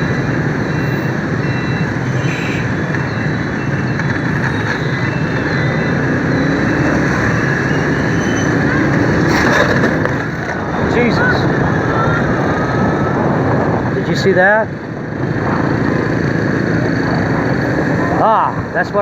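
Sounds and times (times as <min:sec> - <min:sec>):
city traffic: 0:00.0 - 0:19.0
rising engine tone: 0:04.4 - 0:13.8
wind rushing: 0:06.1 - 0:18.8.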